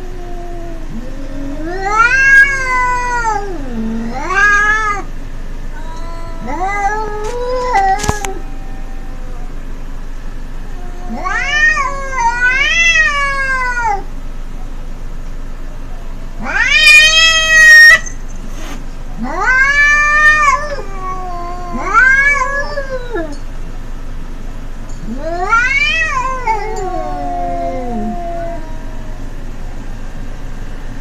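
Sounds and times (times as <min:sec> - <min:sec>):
cats yowling: 0:00.0 - 0:05.1, 0:05.7 - 0:09.7, 0:10.6 - 0:14.1, 0:16.4 - 0:18.2, 0:19.2 - 0:23.5, 0:25.0 - 0:29.5.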